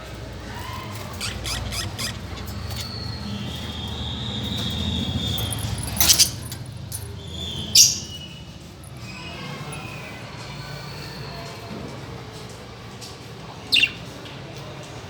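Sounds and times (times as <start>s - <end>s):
birds harsh screeches: 0.4s - 11.5s.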